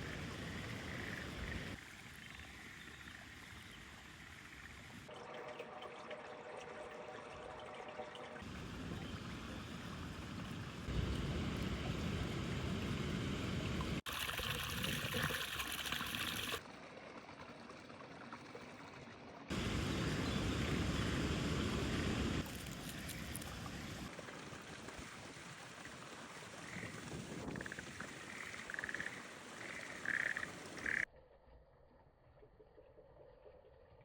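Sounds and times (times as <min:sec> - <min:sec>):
water running and trickling: 0:00.0 - 0:30.9.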